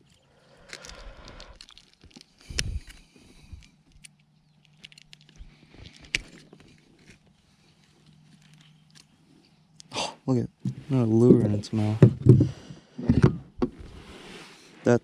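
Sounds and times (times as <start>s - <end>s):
rustling: 0.0s - 9.7s
heavy thump: 12.0s - 13.8s.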